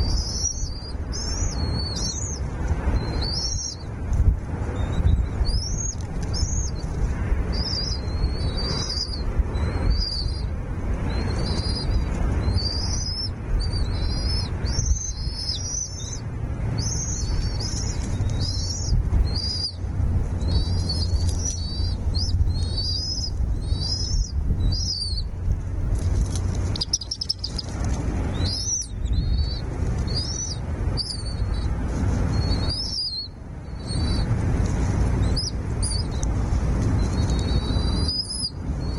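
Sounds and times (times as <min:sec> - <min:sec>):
low rumble: 0:00.0 - 0:38.9
nestling birds chirping: 0:00.0 - 0:38.9.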